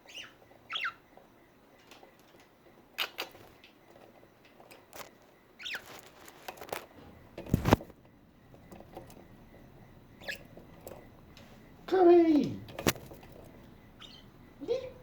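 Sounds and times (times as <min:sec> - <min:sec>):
budgerigar chirp: 0:00.0 - 0:01.0, 0:05.6 - 0:06.0, 0:10.2 - 0:10.5, 0:13.9 - 0:15.0.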